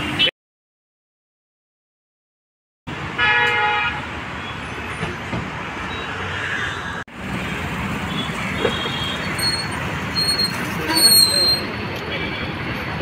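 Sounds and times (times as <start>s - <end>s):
road traffic noise: 0.0s - 0.3s, 2.9s - 13.0s
vehicle horn honking: 3.2s - 4.0s.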